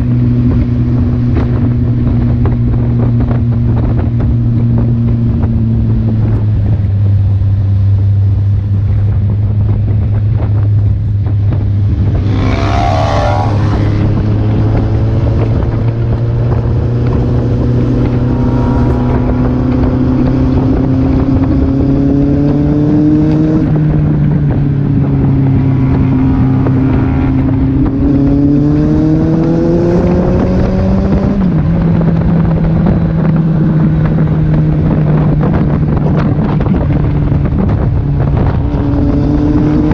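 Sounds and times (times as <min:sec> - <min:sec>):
heavy wind noise: 0:00.0 - 0:39.9
motorcycle engine accelerating: 0:00.0 - 0:39.9.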